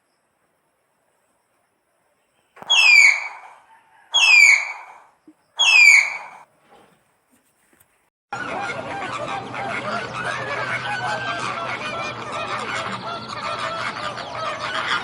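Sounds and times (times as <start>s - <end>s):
animal whistling squeals: 2.6s - 3.6s, 4.2s - 5.0s, 5.6s - 6.4s.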